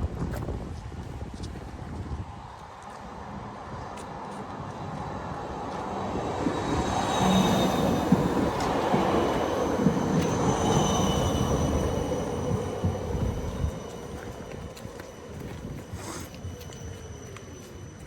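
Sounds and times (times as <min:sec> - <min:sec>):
tram rumbling on rails: 0:00.0 - 0:18.0
wheel squeal: 0:06.7 - 0:18.0.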